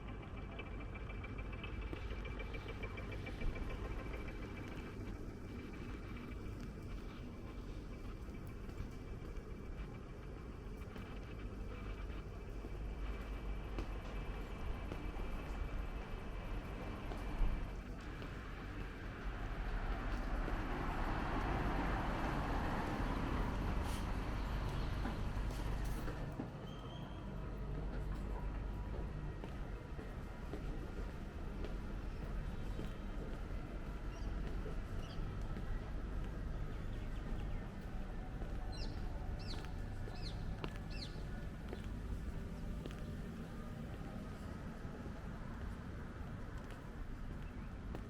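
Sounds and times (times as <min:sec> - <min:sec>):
low background rumble: 0:00.0 - 0:26.5
car passing by: 0:19.0 - 0:26.2.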